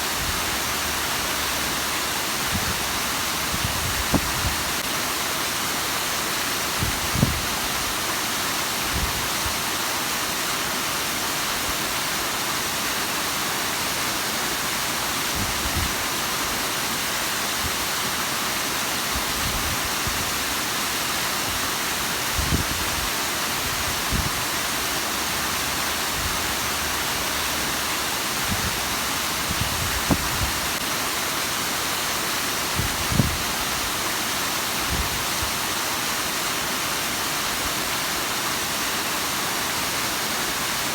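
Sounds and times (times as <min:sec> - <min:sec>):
waterfall rushing and splashing: 0:00.0 - 0:40.9.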